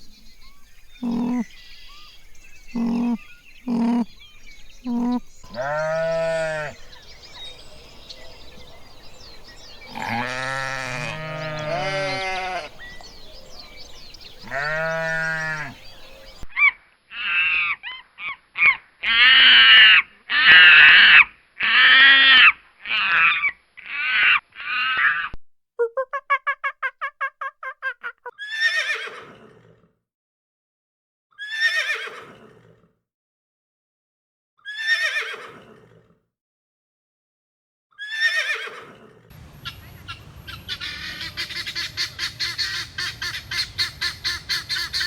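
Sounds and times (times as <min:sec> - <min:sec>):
goats or sheep bleating: 0:01.0 - 0:01.5, 0:02.8 - 0:04.1, 0:04.9 - 0:06.8, 0:09.9 - 0:12.8, 0:14.4 - 0:15.8
rough high-pitched animal calls: 0:01.0 - 0:01.6, 0:02.7 - 0:04.2, 0:04.8 - 0:06.8, 0:09.9 - 0:12.8.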